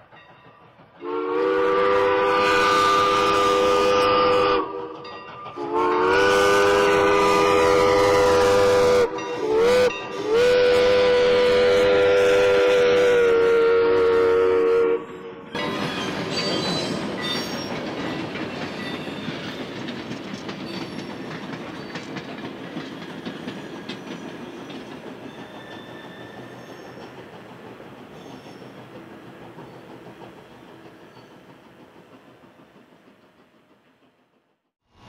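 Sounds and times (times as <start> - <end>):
train wheels clattering on rails: 0.0 - 11.8, 15.0 - 34.6
wheel squeal: 15.6 - 19.8, 20.6 - 22.1, 22.8 - 27.2, 28.1 - 28.8, 30.9 - 31.5.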